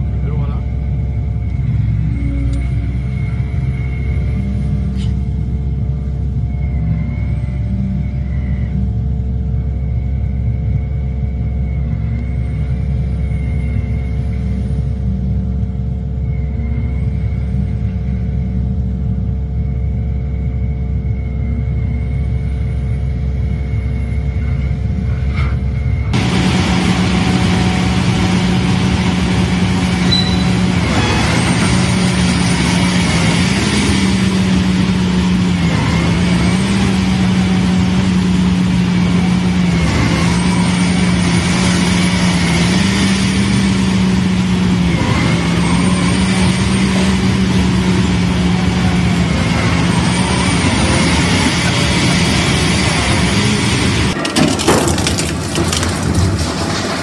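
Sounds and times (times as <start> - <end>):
shredder engine drone: 0.0 - 57.0
grinding clatter: 25.3 - 57.0.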